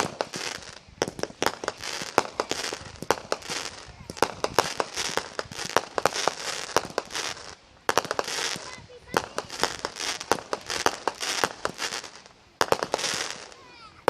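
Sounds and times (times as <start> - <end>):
fireworks bangs and cracks: 0.0 - 14.0
fireworks hissing: 0.0 - 14.0.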